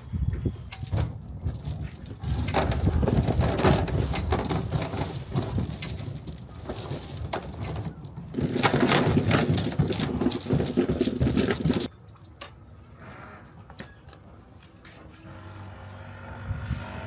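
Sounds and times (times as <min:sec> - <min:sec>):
anchor chain clattering: 0:00.8 - 0:11.9.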